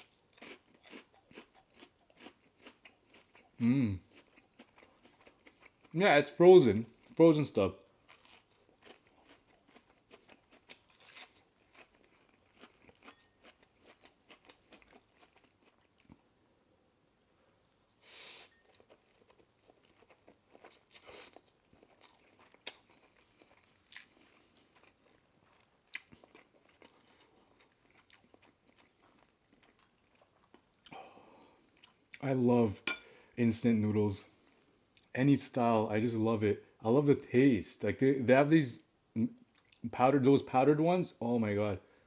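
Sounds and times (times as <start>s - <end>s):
chewing and crunchy bites: 0.0s - 6.0s, 8.0s - 16.2s, 17.6s - 31.0s.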